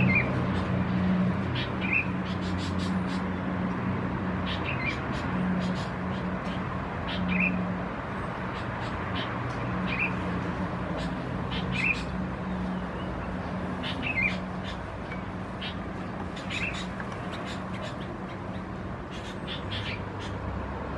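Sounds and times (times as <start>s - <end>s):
birds chirping: 11.0s - 20.5s.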